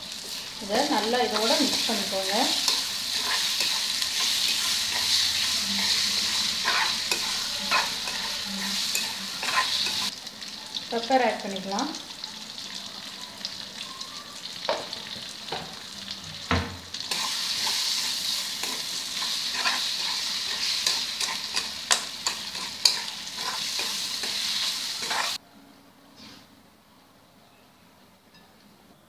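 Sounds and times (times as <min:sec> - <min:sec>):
meat sizzling in a pan: 0:00.0 - 0:25.4
metal spatula scraping a pan: 0:00.1 - 0:10.1, 0:17.1 - 0:25.4.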